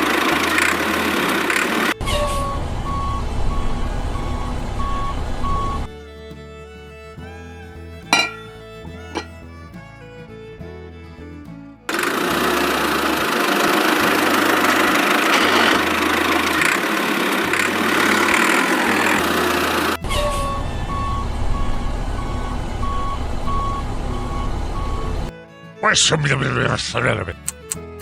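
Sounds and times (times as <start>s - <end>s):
low engine rumble: 0.0s - 25.4s.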